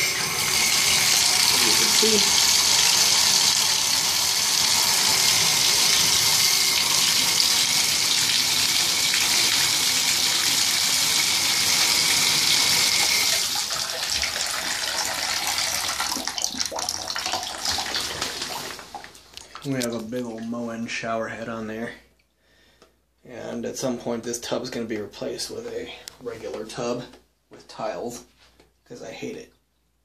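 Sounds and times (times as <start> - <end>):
shower spray into tub: 0.0 - 8.7, 17.6 - 19.0.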